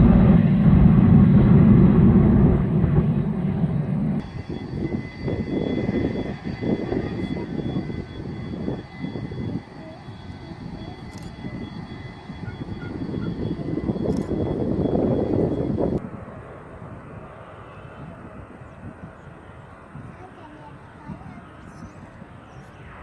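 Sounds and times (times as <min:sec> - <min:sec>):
faint steady engine whine: 0:00.0 - 0:16.1
jet engines roaring: 0:00.0 - 0:21.6.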